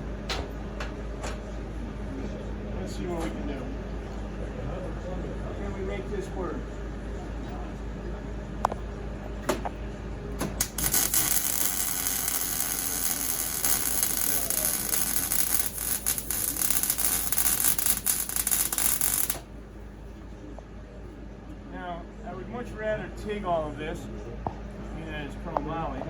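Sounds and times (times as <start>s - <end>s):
welder arc crackling: 10.6s - 19.5s.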